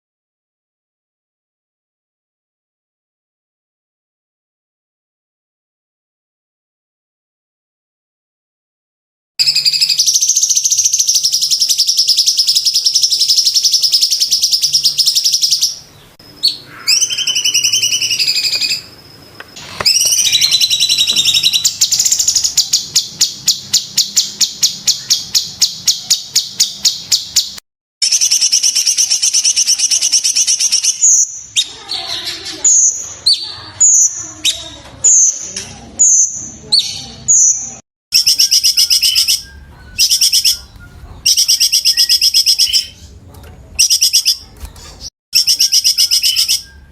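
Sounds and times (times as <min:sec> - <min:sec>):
bird sharp repeated notes: 0:09.4 - 0:31.8, 0:36.0 - 0:46.9
bird singing rattling trills: 0:09.4 - 0:35.4, 0:37.4 - 0:46.9
bird clipped whistles: 0:19.8 - 0:22.4.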